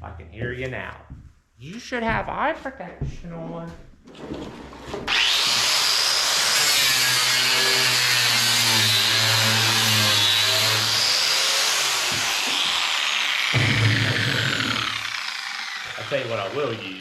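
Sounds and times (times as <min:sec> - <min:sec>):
angle grinder brush whining: 0:05.1 - 0:17.0.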